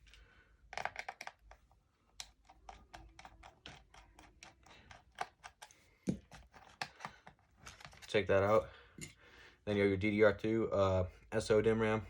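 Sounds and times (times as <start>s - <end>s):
screwdriver clicking on a screw: 2.2s - 7.1s.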